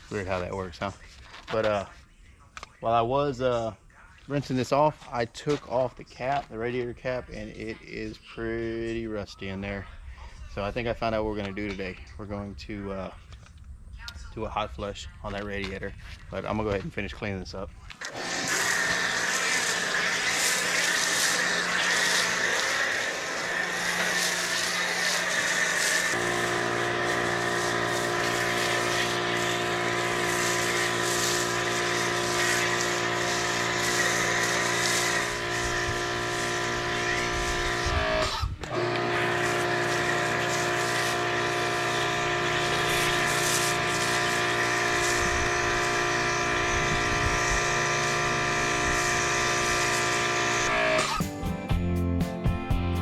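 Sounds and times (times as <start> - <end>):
pressure washer running: 18.0 - 51.2.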